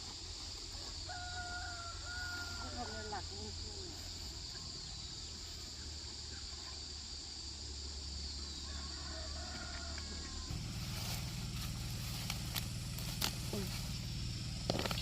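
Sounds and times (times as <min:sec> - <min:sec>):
insect drone: 0:00.0 - 0:15.0
low rumble: 0:10.4 - 0:15.0.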